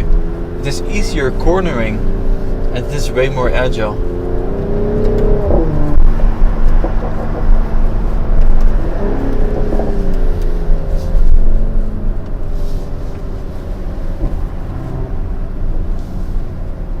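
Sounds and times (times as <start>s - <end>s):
car engine and exhaust on the road: 0.0s - 17.0s.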